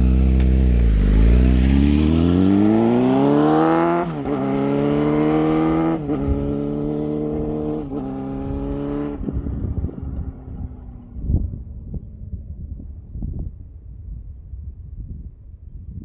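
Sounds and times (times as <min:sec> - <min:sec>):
low rumble: 0:00.0 - 0:04.3
motorcycle exhaust pulling hard: 0:00.0 - 0:10.6.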